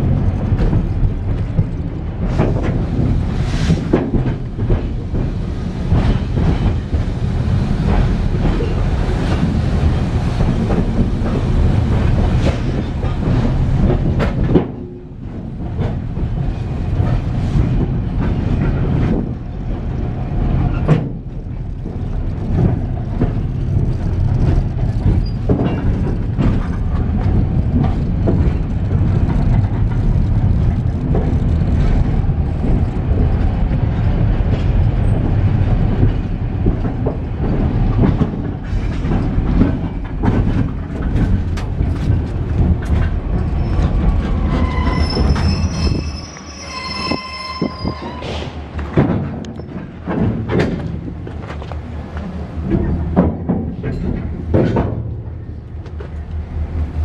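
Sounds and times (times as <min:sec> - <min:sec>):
freight train rumbling: 0:00.0 - 0:57.0
wheels clattering over track: 0:48.0 - 0:56.3.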